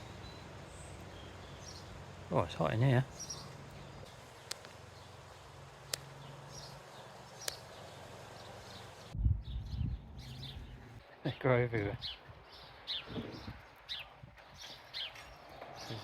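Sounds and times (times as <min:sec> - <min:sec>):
distant bird chirps: 0:00.0 - 0:16.0
sharp clicks: 0:04.4 - 0:04.8, 0:05.9 - 0:06.2, 0:07.4 - 0:07.7.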